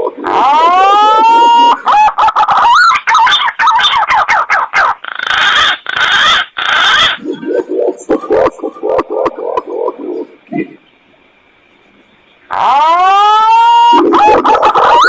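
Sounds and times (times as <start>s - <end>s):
whistled warbling bird calls: 0.2s - 11.0s.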